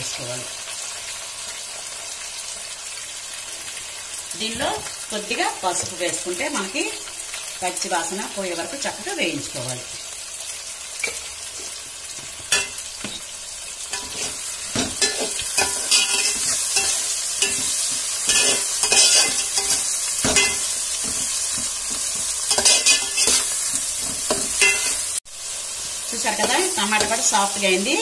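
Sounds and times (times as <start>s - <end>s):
vegetables sizzling in oil: 0.0s - 28.0s
spoon scraping against pot: 13.9s - 25.0s.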